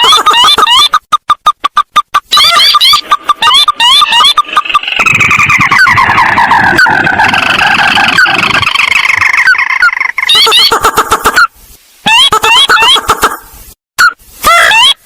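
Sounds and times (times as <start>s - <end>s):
overlapping bird calls: 2.4s - 11.5s
rough low rumble: 4.8s - 9.2s.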